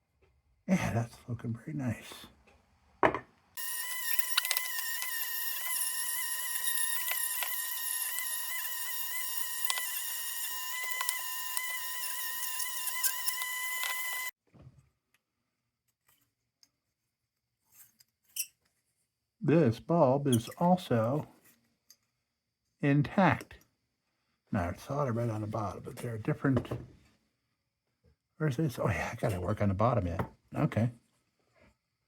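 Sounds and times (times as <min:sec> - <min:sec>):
rotary tool whining: 0:03.6 - 0:14.4.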